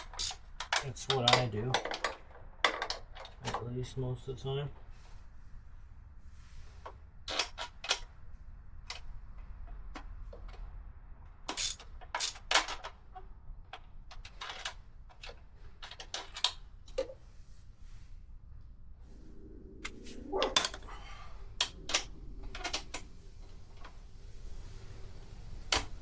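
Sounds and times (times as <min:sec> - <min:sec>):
hand tools clicking on metal: 0:00.0 - 0:02.2, 0:11.5 - 0:12.6.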